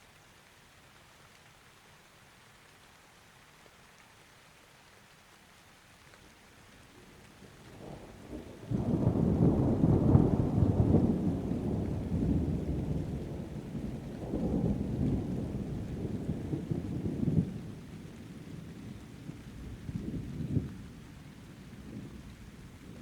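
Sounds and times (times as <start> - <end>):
rain falling: 0.0 - 23.0
thunder rolling: 7.8 - 17.8.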